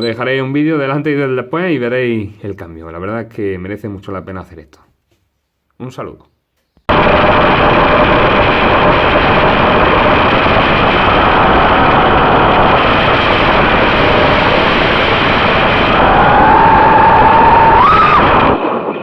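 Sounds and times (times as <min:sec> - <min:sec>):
loud rushing noise: 0:06.9 - 0:19.0.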